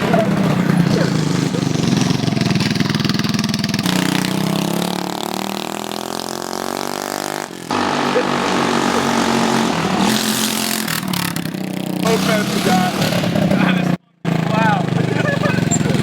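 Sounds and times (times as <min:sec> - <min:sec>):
moped engine without muffler: 0:00.0 - 0:16.0.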